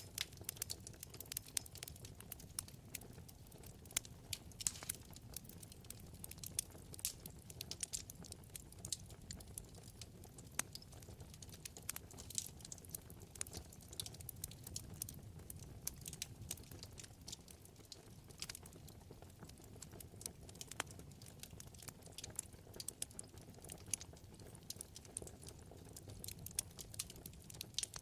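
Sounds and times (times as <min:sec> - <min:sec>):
low rumble of flames: 0:00.0 - 0:28.0
wood fire crackling and popping: 0:00.0 - 0:28.0.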